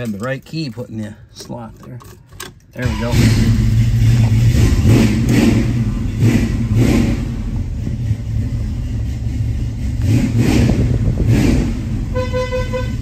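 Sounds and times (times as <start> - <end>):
car engine revving and idling: 2.7 - 13.0.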